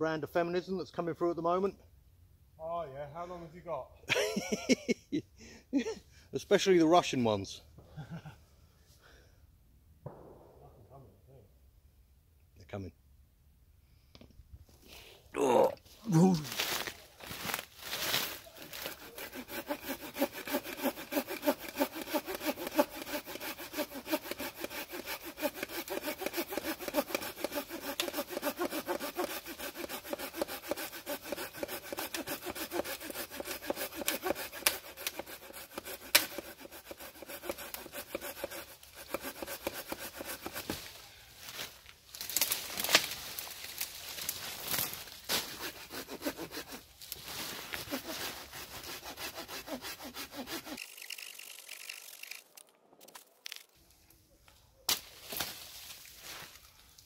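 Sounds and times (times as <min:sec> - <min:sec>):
hand saw cutting wood: 0:17.9 - 0:41.0, 0:43.7 - 0:53.2.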